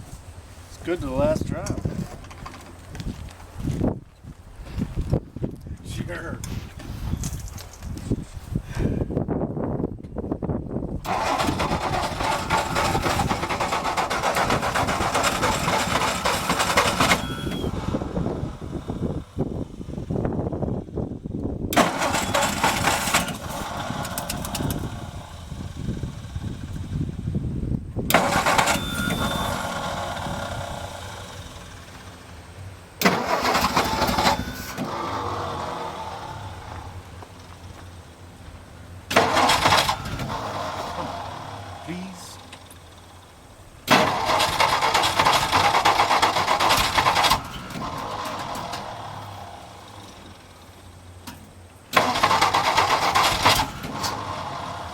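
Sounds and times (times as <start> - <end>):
engine cranking on starter: 11.0 - 20.6, 21.7 - 27.3, 28.1 - 38.2, 39.0 - 54.9.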